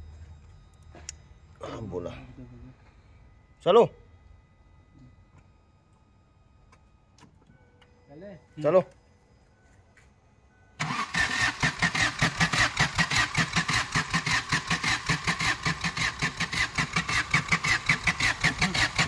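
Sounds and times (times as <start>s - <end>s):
car engine cranking on starter: 10.8s - 19.0s.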